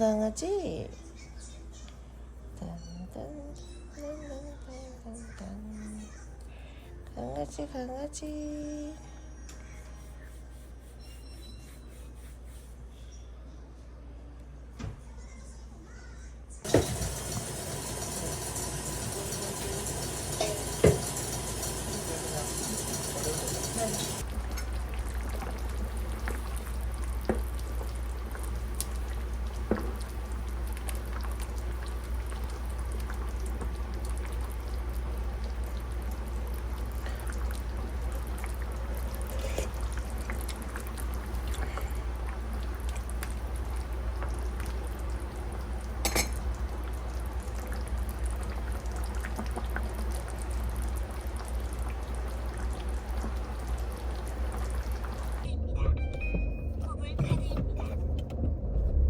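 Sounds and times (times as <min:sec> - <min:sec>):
water running: 0:16.6 - 0:55.5.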